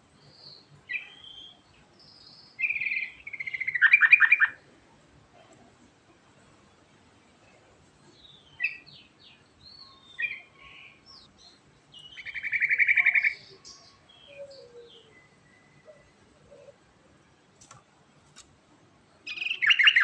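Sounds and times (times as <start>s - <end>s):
bird chirping: 0.1s - 4.6s, 7.4s - 17.4s, 19.2s - 20.0s
rapid bird trill: 2.6s - 4.6s, 19.3s - 20.0s.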